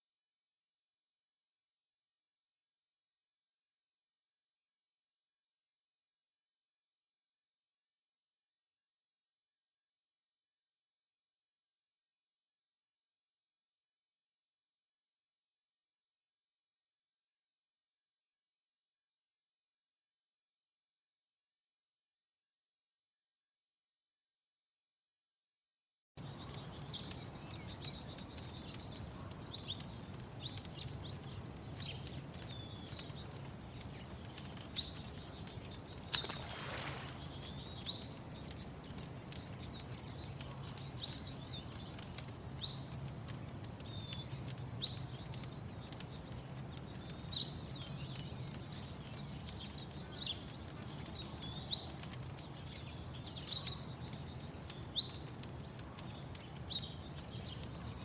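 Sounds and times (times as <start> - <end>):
small birds chirping: 26.2 - 58.0.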